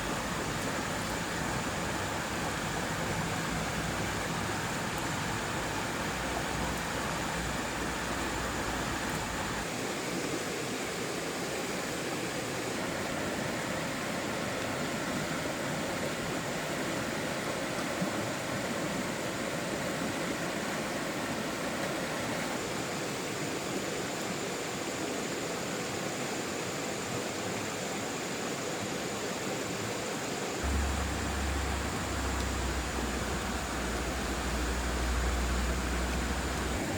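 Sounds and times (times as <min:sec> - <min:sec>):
stream water rushing: 0:00.0 - 0:36.9
low rumble: 0:30.6 - 0:36.9.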